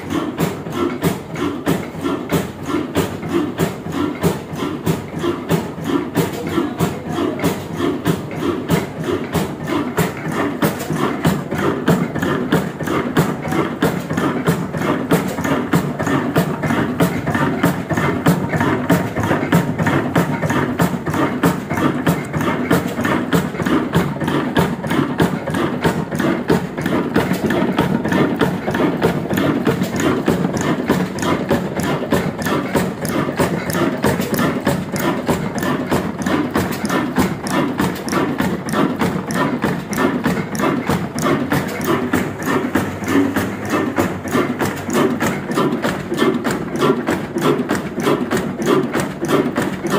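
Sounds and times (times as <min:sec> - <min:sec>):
diesel engine knocking: 0:00.0 - 0:49.9.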